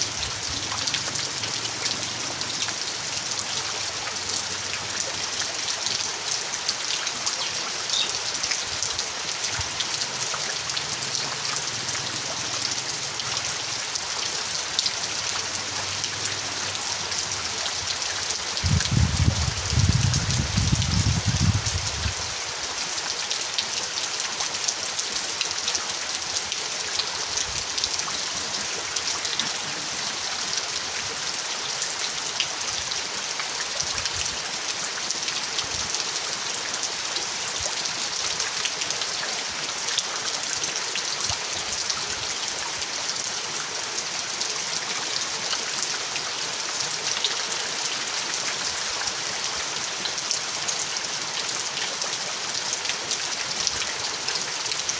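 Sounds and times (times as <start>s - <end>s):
raindrops ticking on surface: 0.0s - 22.4s
steady rain falling: 0.0s - 54.9s.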